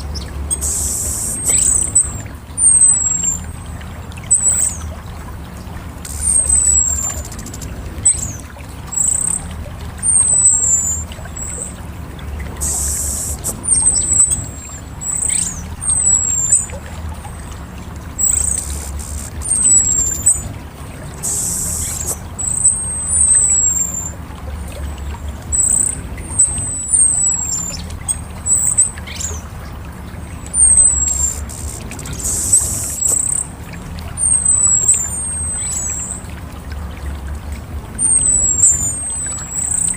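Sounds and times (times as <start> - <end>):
bird calling high thin notes: 0.0 - 5.0, 6.0 - 11.8, 12.5 - 24.2, 30.4 - 36.3
brief hiss: 12.6 - 13.6.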